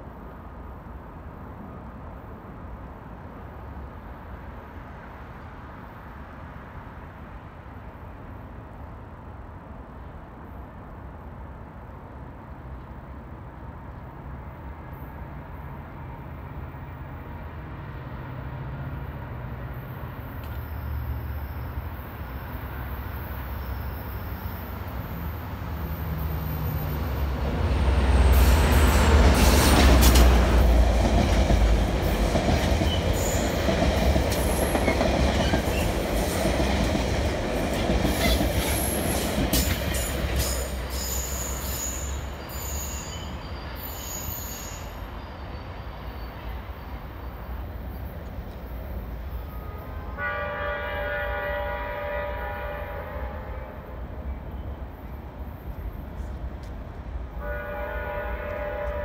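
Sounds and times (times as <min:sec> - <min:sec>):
high-pitched wheel squeal: 0:40.9 - 0:46.4.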